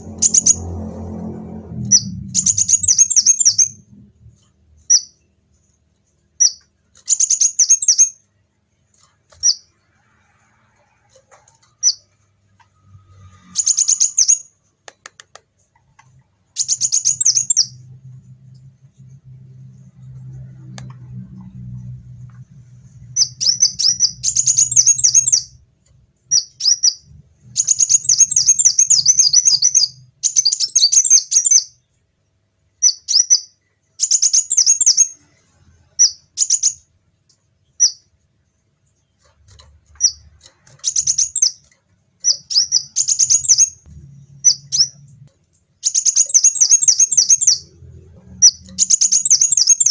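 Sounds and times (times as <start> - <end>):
sunbird twittering trills: 1.8 - 3.8, 13.2 - 14.5, 16.6 - 17.8, 23.0 - 25.6, 26.3 - 31.8, 40.8 - 41.6, 42.2 - 45.2, 45.8 - 47.7, 48.4 - 49.9.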